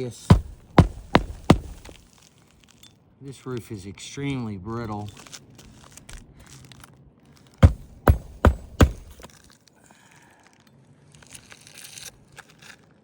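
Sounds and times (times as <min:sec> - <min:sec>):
sharp knocks: 0:00.0 - 0:02.0, 0:07.6 - 0:09.3
shingles scraping and crinkling: 0:00.0 - 0:02.0.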